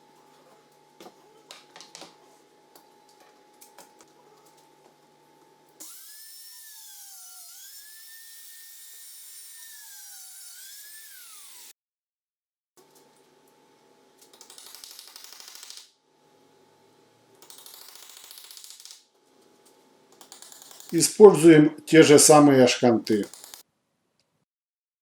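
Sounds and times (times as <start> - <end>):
drill motor whining: 5.8 - 11.7.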